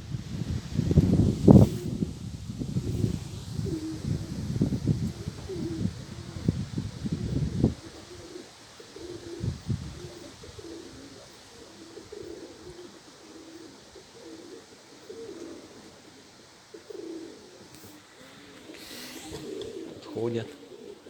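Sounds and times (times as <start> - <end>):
wind buffeting microphone: 0.0 - 8.4, 9.0 - 11.3
pigeons cooing: 0.0 - 21.0.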